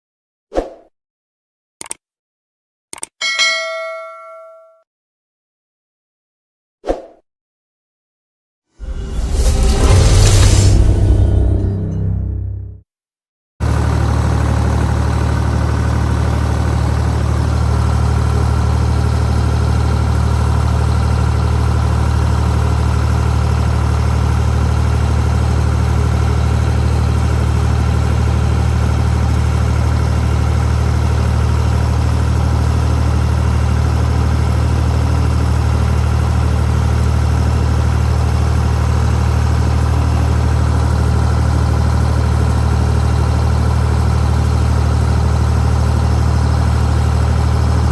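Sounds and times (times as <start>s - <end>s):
tractor engine running: 13.6s - 47.9s.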